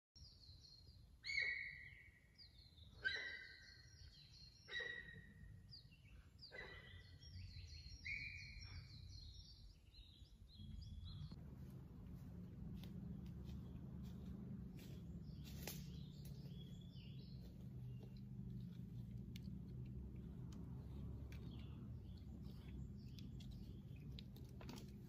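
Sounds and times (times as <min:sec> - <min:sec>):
birds chirping: 0:00.2 - 0:25.0
faint low rumble: 0:10.5 - 0:25.0.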